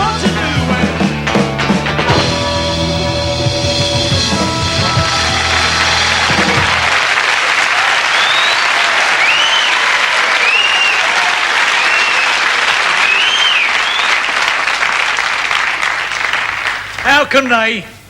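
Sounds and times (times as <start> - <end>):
rock music: 0.0 - 7.1
audience applauding and cheering: 0.0 - 17.3
rising and falling whistles: 8.1 - 9.8, 10.4 - 11.1, 11.8 - 12.4, 13.0 - 14.3.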